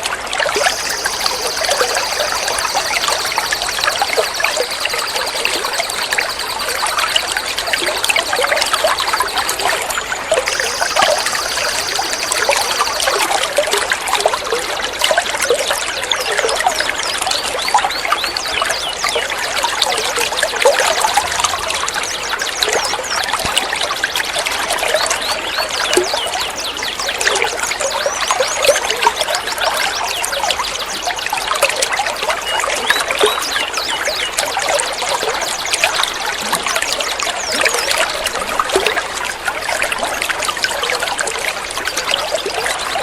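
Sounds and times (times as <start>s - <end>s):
water trickling and gurgling: 0.0s - 43.0s
high-pitched tone: 0.6s - 13.8s.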